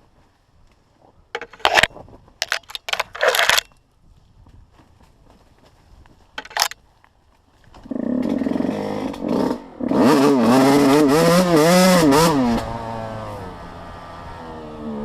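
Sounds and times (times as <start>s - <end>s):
small vehicle engine revving: 7.8s - 15.0s.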